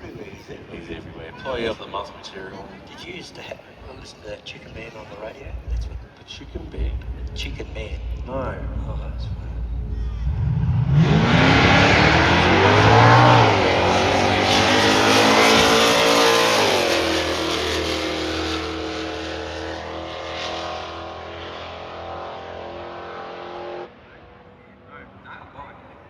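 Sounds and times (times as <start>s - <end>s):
drag racing cars accelerating: 5.4s - 25.3s.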